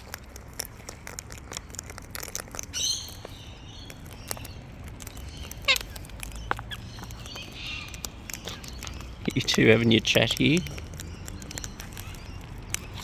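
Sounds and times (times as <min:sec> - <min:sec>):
cockatoos chattering: 0:00.0 - 0:13.0
cockatoo squawk: 0:05.6 - 0:06.0.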